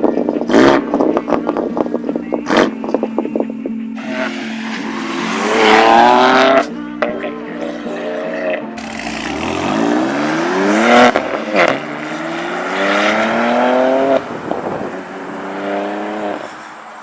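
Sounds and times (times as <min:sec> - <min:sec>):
car engine accelerating hard: 0:04.0 - 0:06.7, 0:07.6 - 0:17.0.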